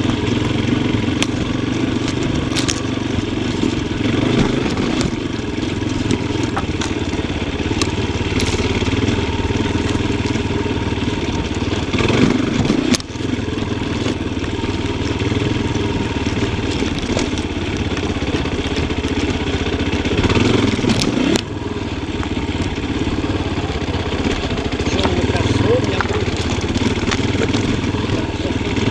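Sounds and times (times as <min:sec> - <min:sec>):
knocks and clatter: 0:00.0 - 0:10.4
motorcycle engine revving: 0:00.0 - 0:28.9.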